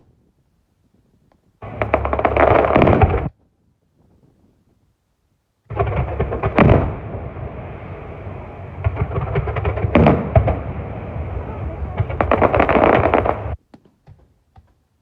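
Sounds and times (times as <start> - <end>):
crackling of bursting shells: 1.6 - 3.4, 12.0 - 13.6
fireworks booming: 1.6 - 4.8, 5.7 - 13.6.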